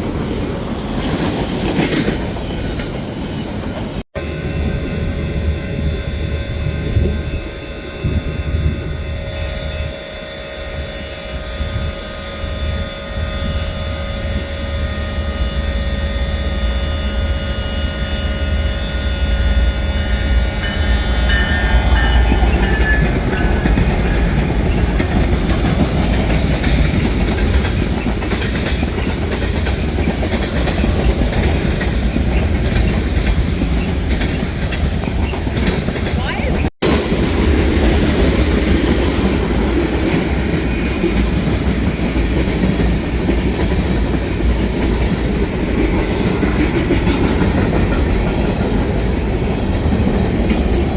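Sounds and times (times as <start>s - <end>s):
wheels clacking over rail joints: 0.0s - 4.0s, 20.6s - 37.0s
train rumbling past: 0.0s - 50.9s
high-pitched whine: 4.2s - 25.3s.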